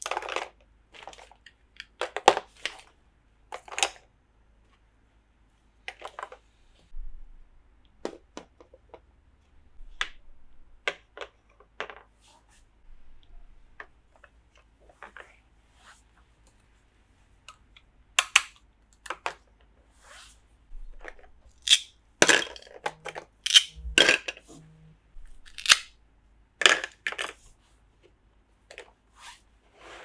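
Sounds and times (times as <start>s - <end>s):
toy pieces clicking and tapping: 18.2s - 18.5s, 21.7s - 22.6s, 23.5s - 24.3s, 25.5s - 25.9s
packaging crinkling: 25.5s - 25.8s.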